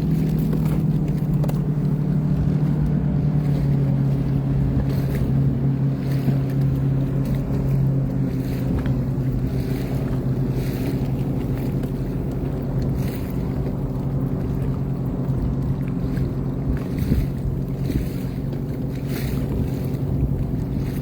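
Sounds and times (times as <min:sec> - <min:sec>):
water noise: 0:00.0 - 0:21.0
watercraft engine running: 0:00.0 - 0:21.0
wind noise on microphone: 0:15.4 - 0:21.0.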